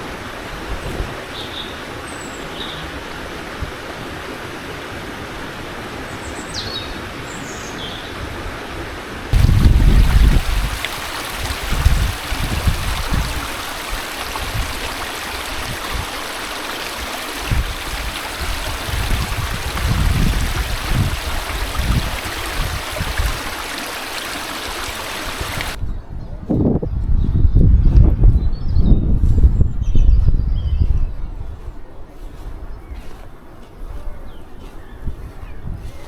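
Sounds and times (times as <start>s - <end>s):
wind buffeting microphone: 9.3s - 36.0s
river water running: 9.4s - 25.8s.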